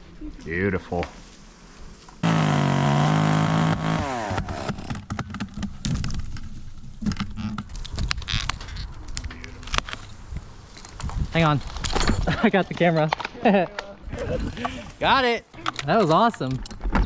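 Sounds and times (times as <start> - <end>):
chainsaw revving: 2.2 - 5.0.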